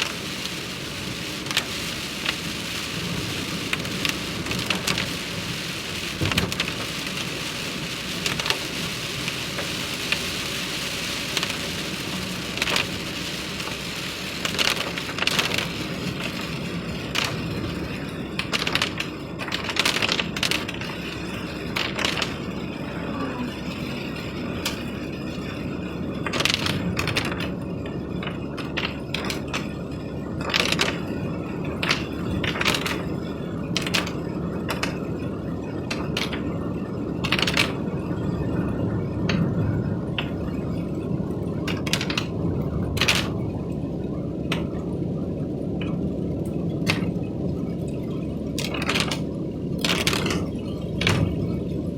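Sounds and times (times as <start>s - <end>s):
rain hiss: 0.0s - 27.5s
sharp clicks and knocks: 46.8s - 47.1s, 48.6s - 51.4s.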